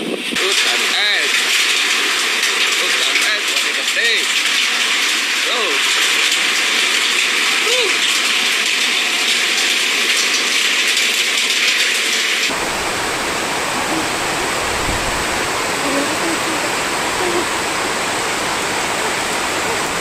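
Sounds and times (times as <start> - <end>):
heavy rain falling: 0.4 - 20.0.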